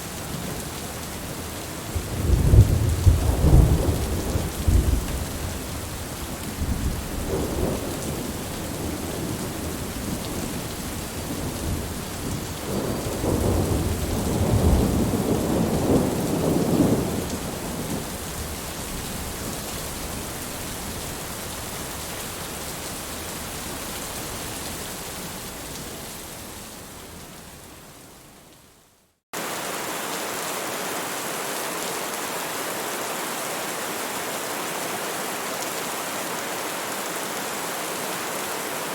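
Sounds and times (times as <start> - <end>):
steady rain: 0.0 - 38.9
rolling thunder: 2.0 - 5.2, 12.6 - 18.0.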